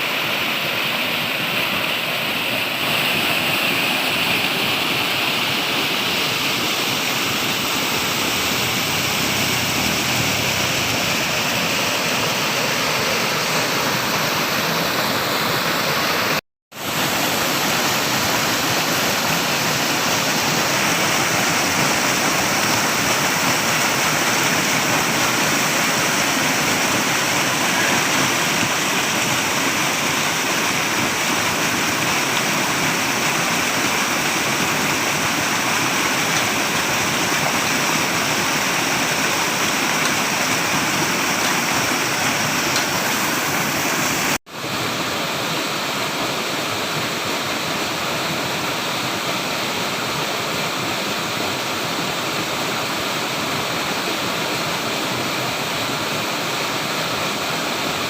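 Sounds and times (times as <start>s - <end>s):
water rushing: 0.0s - 58.0s.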